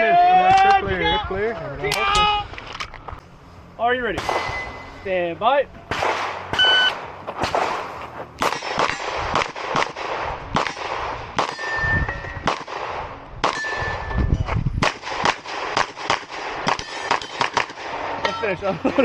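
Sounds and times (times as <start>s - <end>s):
steel targets ringing: 4.1s - 5.2s, 11.4s - 12.5s, 13.4s - 14.4s, 16.7s - 17.5s
rapid pistol shots: 5.9s - 11.8s, 12.4s - 14.0s, 14.8s - 18.2s.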